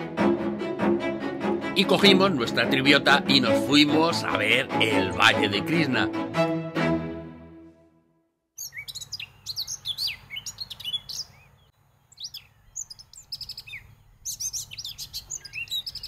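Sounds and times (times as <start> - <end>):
music track: 0.0 - 8.2
songbirds chirping and singing: 8.6 - 16.0.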